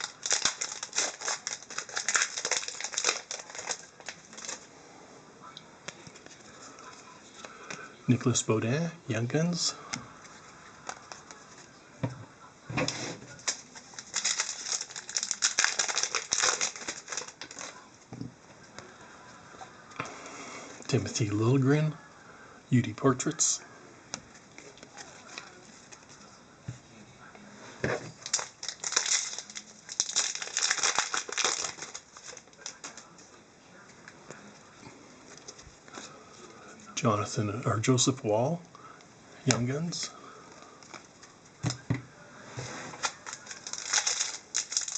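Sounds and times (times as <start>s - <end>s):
trading cards rustling and flicking: 0.0s - 4.6s, 13.4s - 17.7s, 43.0s - 44.9s
foil wrapper crinkling: 0.0s - 4.7s, 10.2s - 11.7s, 12.9s - 17.9s, 28.1s - 33.2s, 42.9s - 44.9s.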